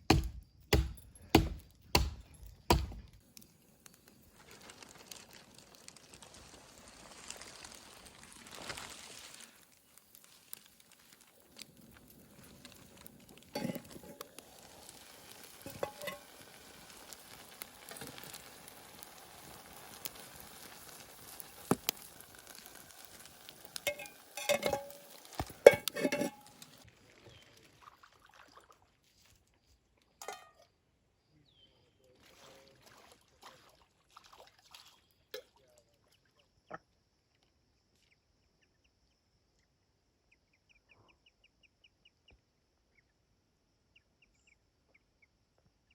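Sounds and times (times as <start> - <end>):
food sizzling in a pan: 4.4 - 26.8
utensils knocking on a pan: 15.7 - 16.2, 23.9 - 26.5.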